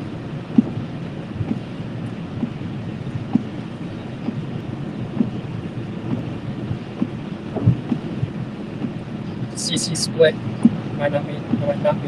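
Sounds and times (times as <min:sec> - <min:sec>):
car road noise rumble: 0:00.0 - 0:12.0
light thumps: 0:06.0 - 0:09.5.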